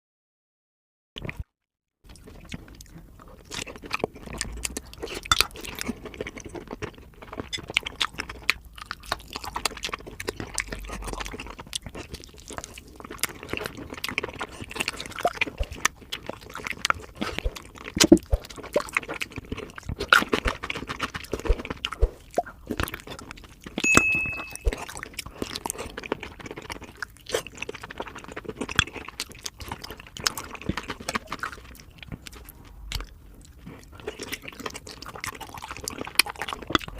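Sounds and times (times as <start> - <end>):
crunchy chewing: 2.1 - 23.8, 24.6 - 36.9
high-pitched tone: 23.8 - 24.9.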